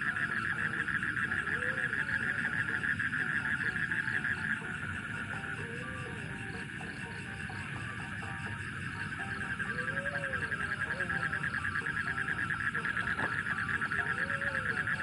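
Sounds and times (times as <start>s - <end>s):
fast pulsing animal trill: 0.0s - 15.0s
low animal calls rising and falling: 1.0s - 3.2s, 9.4s - 15.0s.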